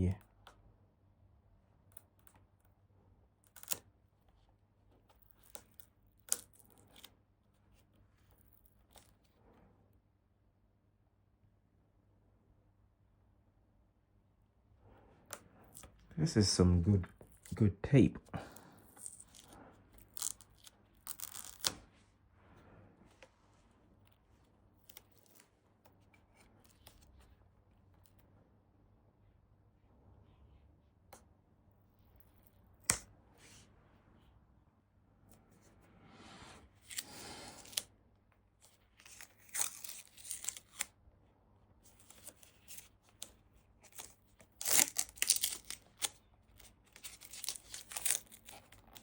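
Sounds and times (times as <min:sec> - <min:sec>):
tape peeling and crackling: 0:03.4 - 0:09.4, 0:15.2 - 0:16.4, 0:18.6 - 0:21.9, 0:24.0 - 0:28.2, 0:36.8 - 0:37.9, 0:38.6 - 0:41.0, 0:41.8 - 0:49.0
tape ripping: 0:18.9 - 0:21.9, 0:38.6 - 0:40.9, 0:41.9 - 0:49.0.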